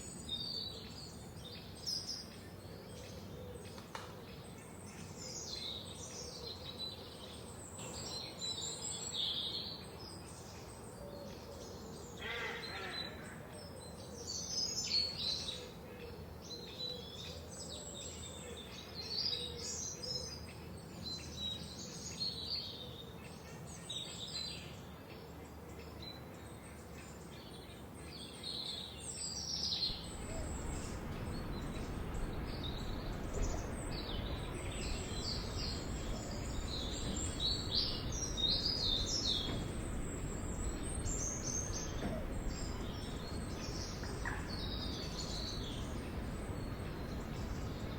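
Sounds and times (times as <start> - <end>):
forest birds singing: 0.0 - 47.9
low background noise: 0.0 - 47.9.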